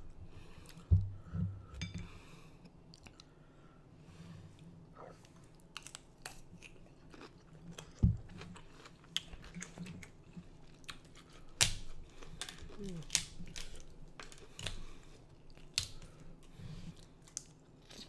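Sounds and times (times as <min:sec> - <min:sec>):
crunching and chewing cucumber: 0:05.6 - 0:16.2.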